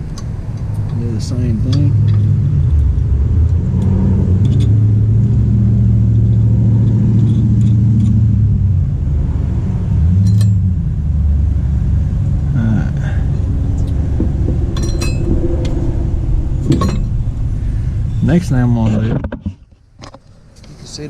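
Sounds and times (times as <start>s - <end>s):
engine humming: 0.0s - 21.0s
light metallic clink: 10.2s - 10.6s.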